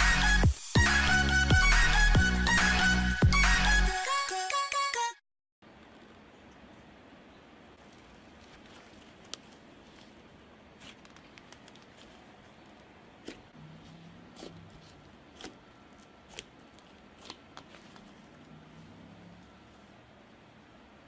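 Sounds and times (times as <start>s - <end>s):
faint room noise: 5.6s - 21.0s.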